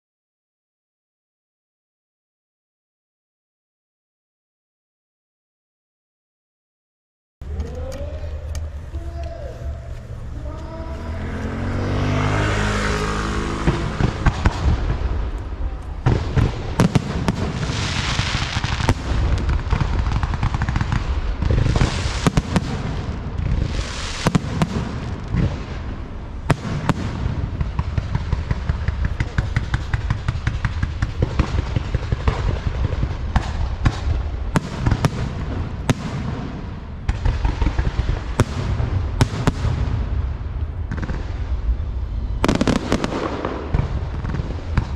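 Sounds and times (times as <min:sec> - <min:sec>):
sharp bangs pops and crackles: 0:13.4 - 0:41.8, 0:42.4 - 0:44.9.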